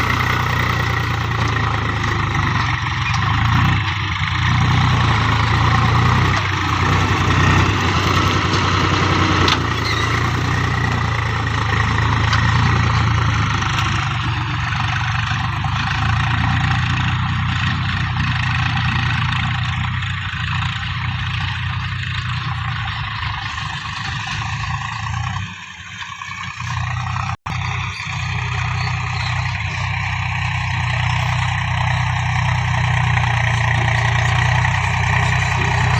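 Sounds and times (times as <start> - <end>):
tractor engine running under load: 0.0 - 35.9.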